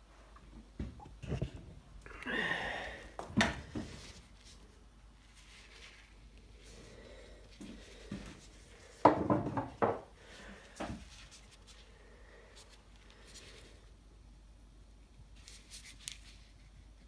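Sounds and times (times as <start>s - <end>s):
objects knocking on workbench: 9.0s - 10.1s.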